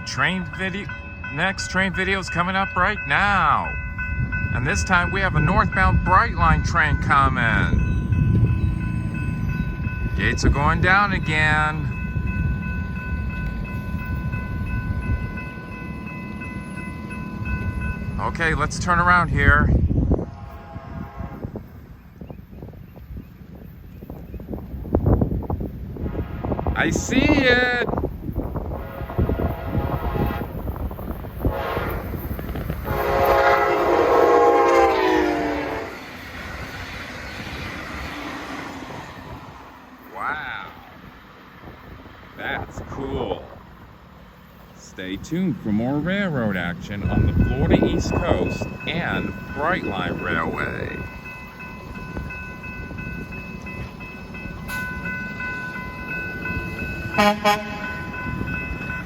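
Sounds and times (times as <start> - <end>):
crossing warning bells ringing: 0.0 - 59.0
passing train: 0.0 - 59.0
train horn blast: 20.2 - 21.8, 26.0 - 27.1, 28.6 - 30.7, 31.4 - 36.1, 57.1 - 58.2.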